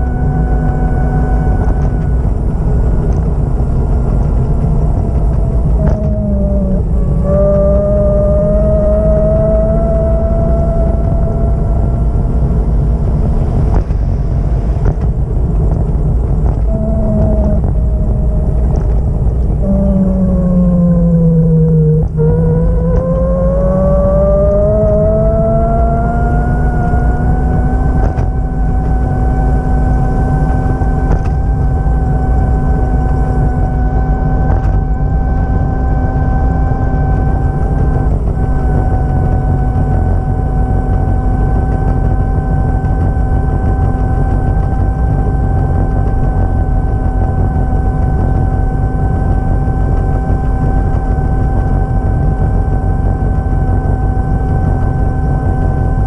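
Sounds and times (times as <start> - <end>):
vehicle engine running with whine: 0.0 - 56.0.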